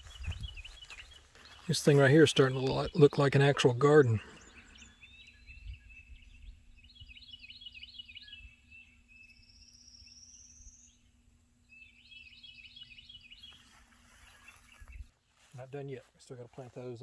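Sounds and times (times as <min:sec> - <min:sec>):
wind on microphone: 0:00.0 - 0:00.9, 0:05.4 - 0:07.2
songbirds chirping: 0:00.0 - 0:17.0.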